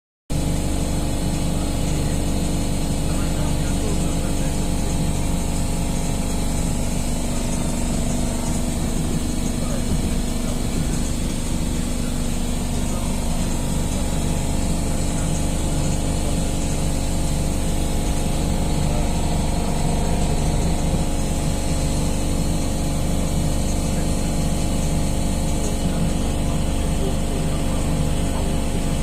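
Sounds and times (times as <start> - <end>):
electric train rumble and hum: 0.3 - 29.0
steady tones: 0.3 - 29.0.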